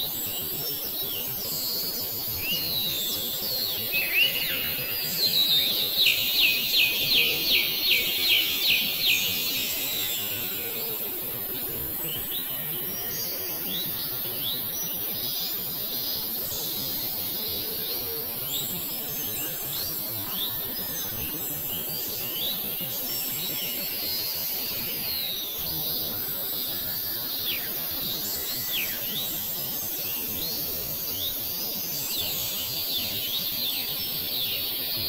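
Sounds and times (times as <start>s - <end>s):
bird calling: 3.9s - 11.0s.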